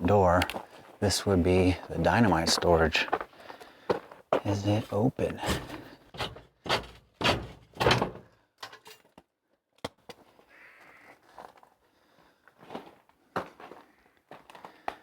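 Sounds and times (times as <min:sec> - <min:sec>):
loud bangs on shed door: 0:06.7 - 0:08.3.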